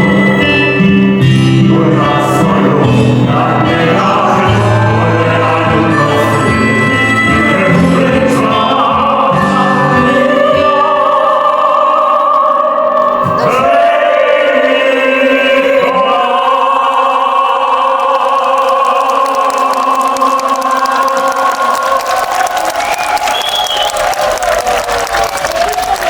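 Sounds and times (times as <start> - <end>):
classical singers in harmony: 0.0 - 24.5.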